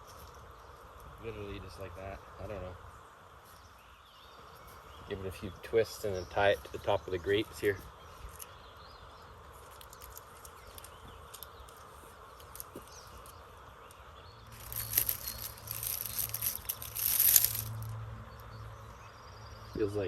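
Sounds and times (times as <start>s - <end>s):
mylar tape crinkling: 6.5s - 8.5s, 9.4s - 17.9s.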